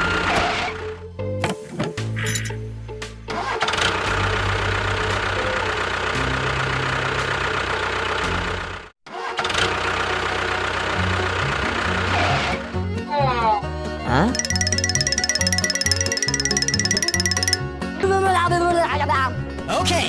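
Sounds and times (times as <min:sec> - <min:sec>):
engine running: 0:03.4 - 0:08.9, 0:09.5 - 0:12.7.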